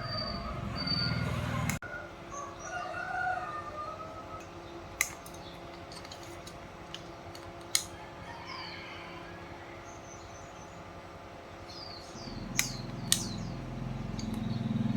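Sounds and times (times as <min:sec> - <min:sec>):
sharp clicks: 0:12.4 - 0:13.5.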